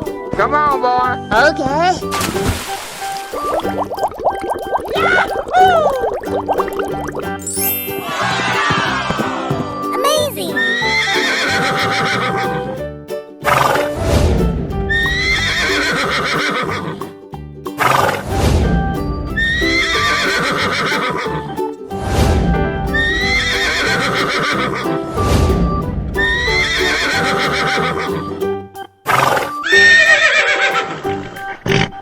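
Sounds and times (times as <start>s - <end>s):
upbeat cartoon music: 0.0s - 32.0s
brief sweeping sound: 13.5s - 15.7s, 21.9s - 27.3s
horse whinnying: 15.5s - 16.8s, 20.0s - 21.2s, 29.3s - 31.0s.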